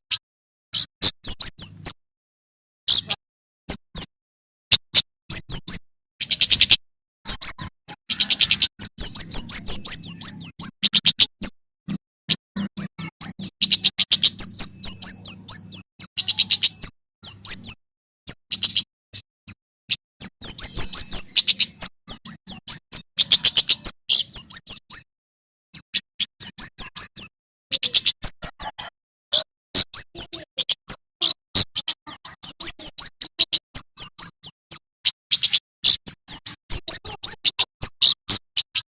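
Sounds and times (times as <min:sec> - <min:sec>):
bird chirping rapidly: 0:00.8 - 0:02.0, 0:02.9 - 0:04.1, 0:04.7 - 0:25.1, 0:25.7 - 0:38.9.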